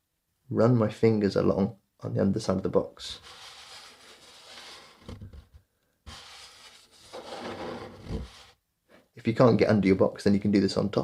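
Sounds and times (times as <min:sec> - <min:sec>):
fingertips rubbing cardboard: 0:03.2 - 0:05.4, 0:06.1 - 0:08.6.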